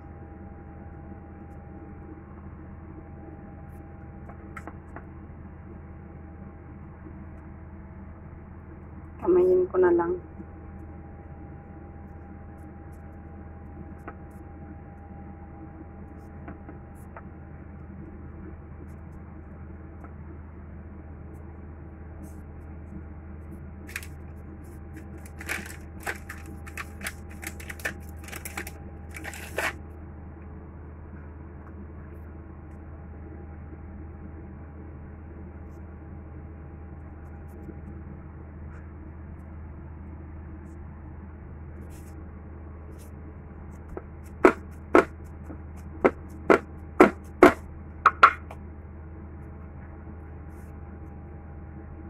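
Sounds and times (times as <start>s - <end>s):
steady low hum: 0.0s - 52.0s
crisp crackling and clicking: 23.9s - 29.8s
knife chopping on cutting board: 44.3s - 45.2s, 46.0s - 48.4s.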